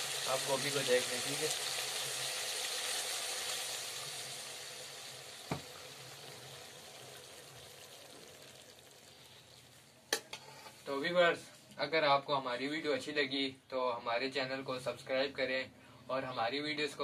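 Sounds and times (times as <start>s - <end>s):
vegetables sizzling in a metal wok: 0.0s - 10.9s.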